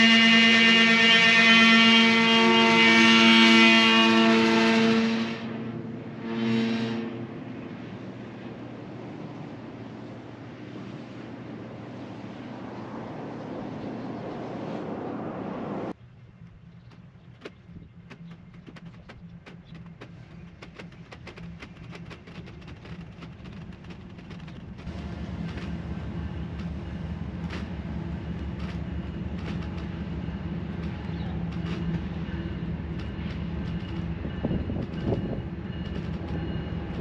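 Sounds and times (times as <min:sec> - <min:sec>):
passing train rumble: 0:00.0 - 0:37.0
wheels clicking on rails: 0:16.0 - 0:37.0.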